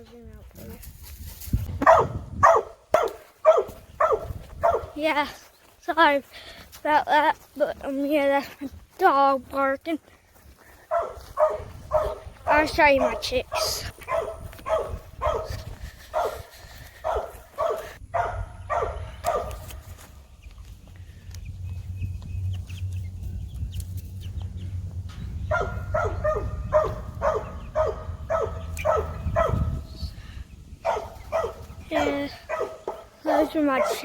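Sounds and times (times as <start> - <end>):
dog barking: 1.8 - 5.0, 10.9 - 19.7, 25.4 - 29.9, 30.8 - 34.0
low rumble: 20.1 - 30.8.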